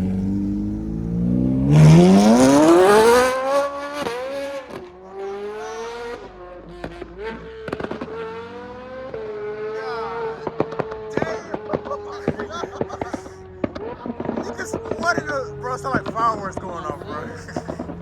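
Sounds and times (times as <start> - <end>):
car engine revving hard: 0.0 - 18.0
exhaust pops and crackles: 4.0 - 5.0, 6.1 - 8.3, 10.3 - 18.0.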